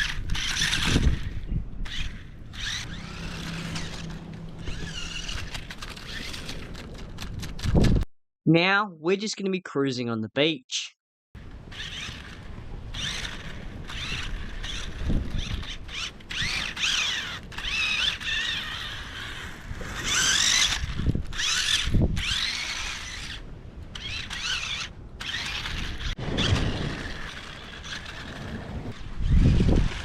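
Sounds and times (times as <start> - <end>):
toy car motor whining: 0.0 - 6.8, 11.6 - 28.6
wheels rumbling: 0.0 - 8.0, 11.4 - 30.0.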